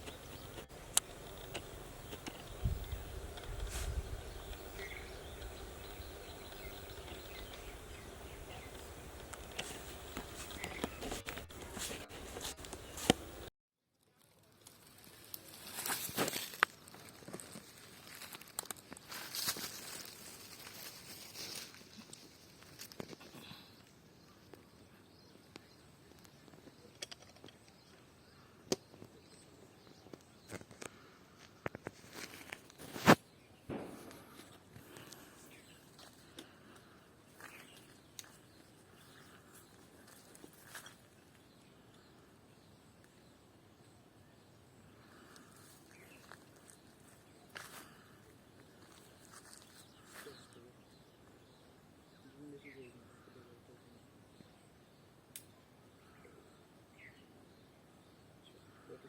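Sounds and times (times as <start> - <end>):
faint bird chirps: 0.0 - 11.2, 34.9 - 59.0
faint scattered clicks and snaps: 55.3 - 55.5.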